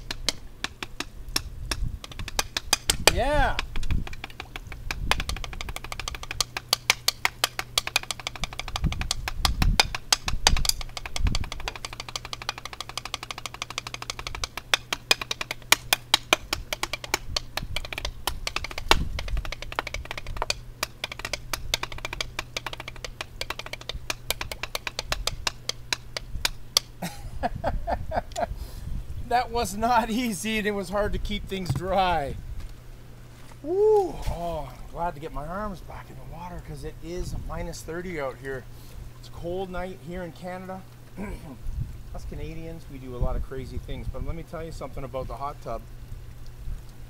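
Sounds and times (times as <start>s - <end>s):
drumsticks tapping practice pad: 0.0s - 27.2s, 31.6s - 32.2s.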